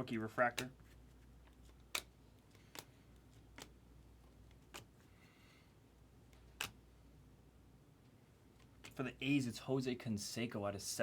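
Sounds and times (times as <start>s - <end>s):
cards flipping with soft clicks: 0.4s - 5.3s, 6.3s - 6.9s, 8.5s - 9.4s.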